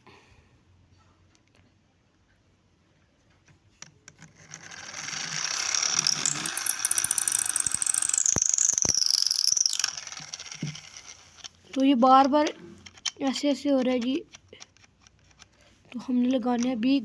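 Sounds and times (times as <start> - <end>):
toy motor gears clattering: 3.8 - 15.6
person talking: 11.8 - 12.6, 15.9 - 17.0.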